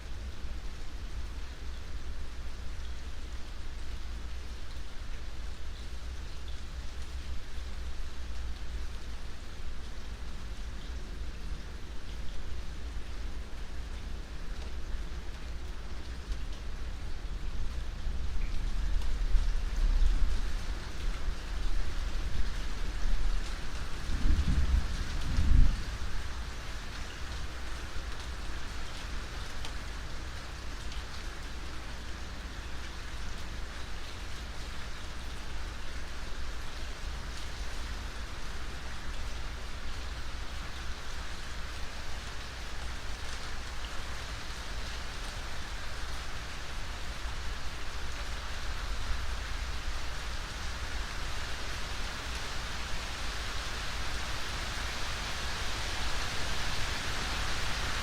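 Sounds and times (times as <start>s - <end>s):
rain hissing on surfaces: 0.0s - 58.0s
rain drop ticks: 4.6s - 25.6s, 26.2s - 45.4s.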